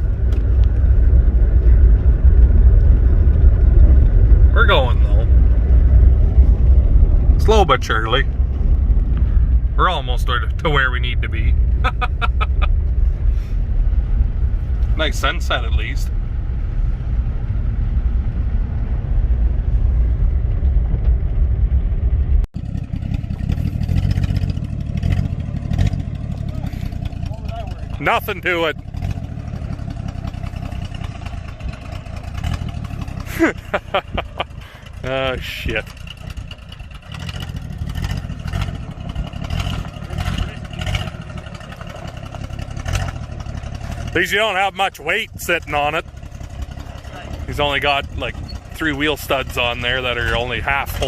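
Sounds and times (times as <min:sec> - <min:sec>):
truck engine rumbling: 0:00.0 - 0:51.0
rattling clatter: 0:19.6 - 0:51.0.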